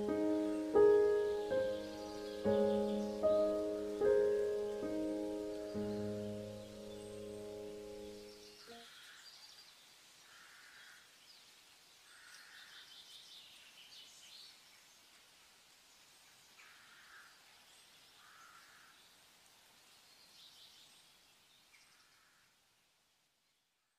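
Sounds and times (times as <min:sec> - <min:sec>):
faint bird calls: 0:00.0 - 0:11.2, 0:12.0 - 0:13.2, 0:16.6 - 0:19.2
steady hiss: 0:00.0 - 0:23.6.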